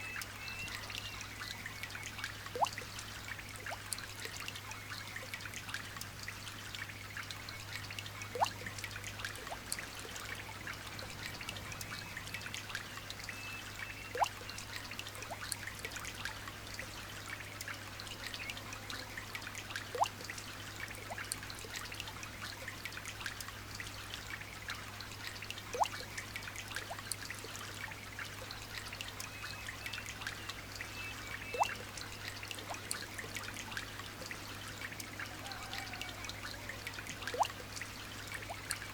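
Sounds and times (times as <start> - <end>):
light rain patter: 0.0 - 38.9
single drip plinking: 31.5 - 31.8.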